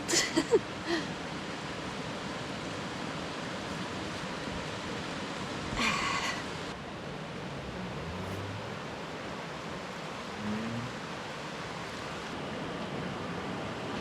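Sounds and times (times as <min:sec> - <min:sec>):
rain falling: 0:05.4 - 0:12.4.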